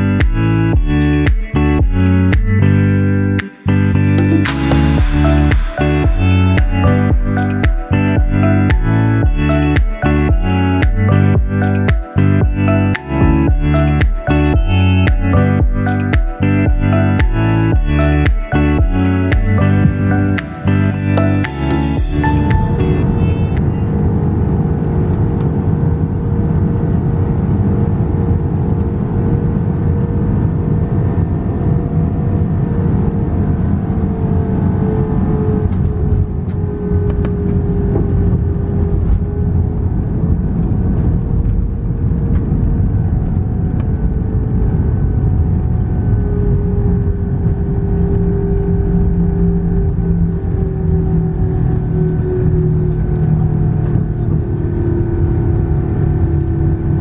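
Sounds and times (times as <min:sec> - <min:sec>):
jet engine cabin rumble: 0:35.6 - 0:57.0.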